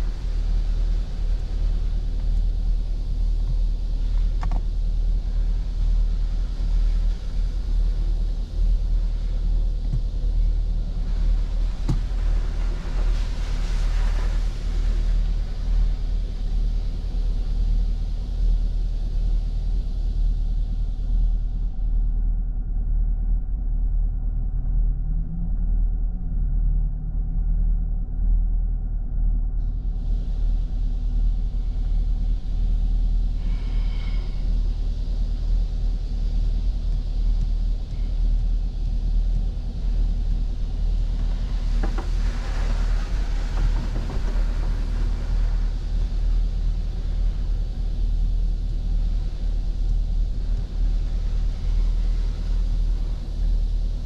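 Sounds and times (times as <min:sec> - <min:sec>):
water spray hissing on car: 0:00.0 - 0:17.6, 0:32.9 - 0:35.3, 0:39.7 - 0:54.0
car wash low rumble: 0:00.0 - 0:54.0.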